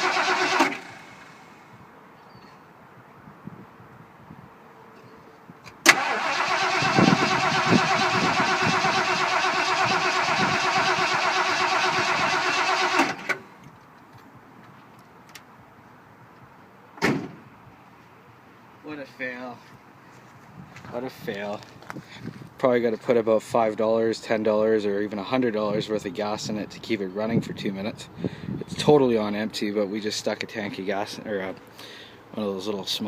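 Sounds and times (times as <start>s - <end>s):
starter motor cranking engine: 0.0s - 1.5s, 5.9s - 13.4s
short thump: 17.0s - 17.4s.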